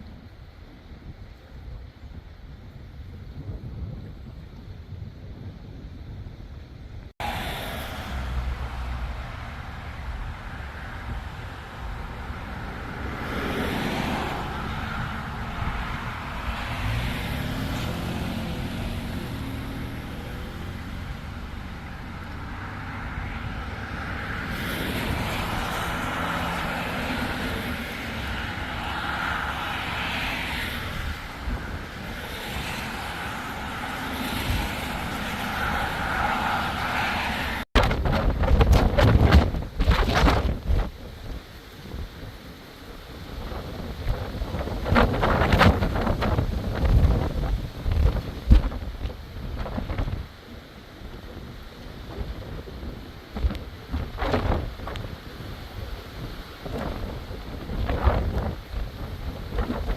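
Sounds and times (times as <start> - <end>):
storm wind on microphone: 0.0 - 59.9
vehicle passing: 7.2 - 37.7.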